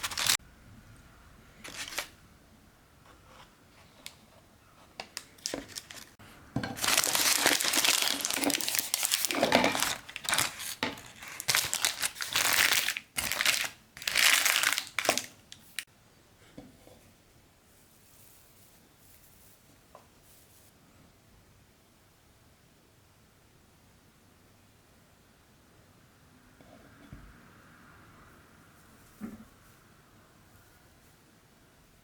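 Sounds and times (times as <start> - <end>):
parchment paper crinkling: 0.0 - 0.4, 1.6 - 2.1, 5.0 - 6.2, 6.8 - 15.8.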